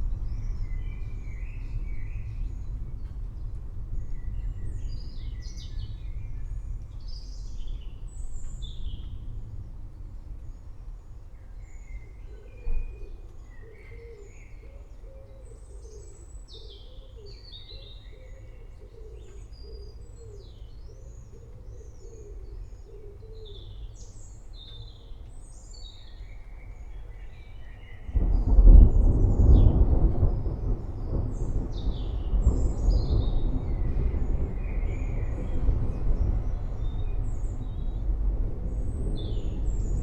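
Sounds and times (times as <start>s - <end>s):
thunder rolling: 28.1s - 40.0s
low steady rumble: 28.2s - 40.0s.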